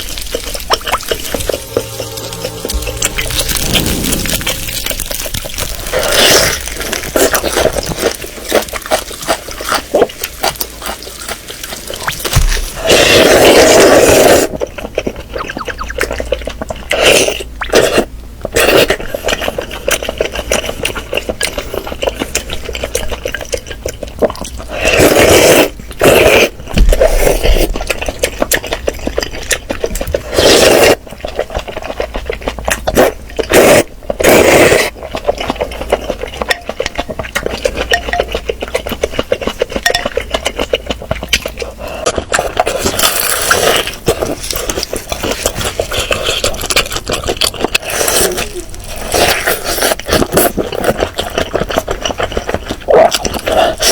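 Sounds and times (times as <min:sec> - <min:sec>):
chewing and slurping: 0:00.0 - 0:53.9
utensils clinking against bowl: 0:36.5 - 0:38.4, 0:39.8 - 0:40.3.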